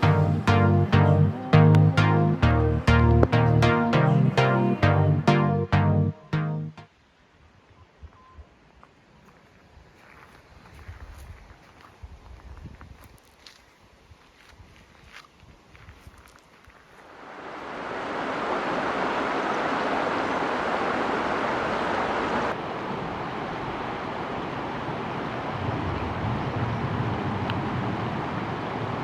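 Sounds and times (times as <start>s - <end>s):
stream rushing: 17.0s - 25.8s.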